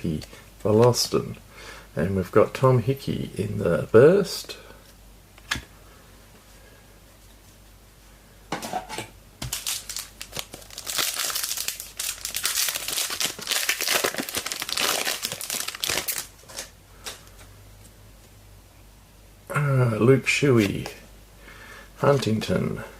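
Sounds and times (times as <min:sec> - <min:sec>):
wrapper tearing and crinkling: 0:09.4 - 0:16.7.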